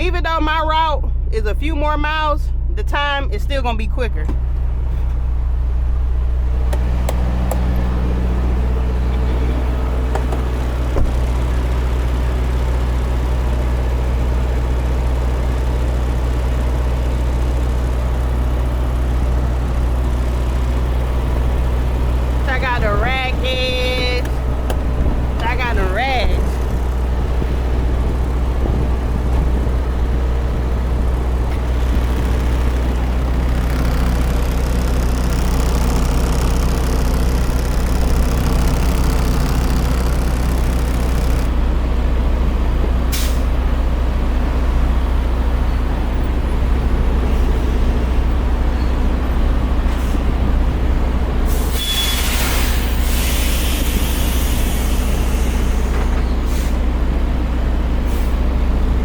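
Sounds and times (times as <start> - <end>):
diesel truck engine running: 0.0 - 59.0
air hiss: 51.5 - 55.7.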